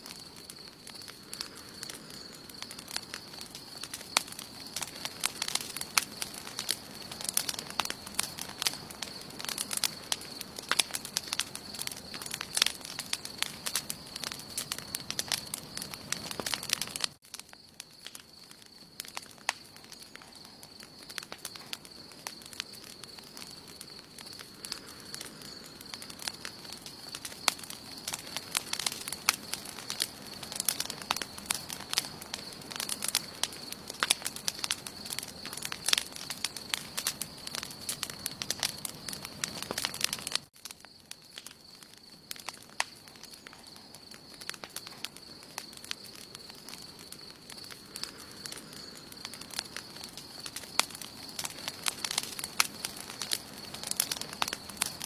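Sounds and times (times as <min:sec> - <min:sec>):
soft fire hiss: 0:00.0 - 0:17.7, 0:19.1 - 0:37.8
campfire crackling and popping: 0:00.0 - 0:55.0.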